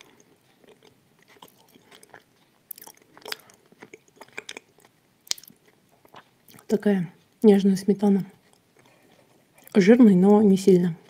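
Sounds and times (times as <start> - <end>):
close chewing wet clicks: 0.0 - 7.5.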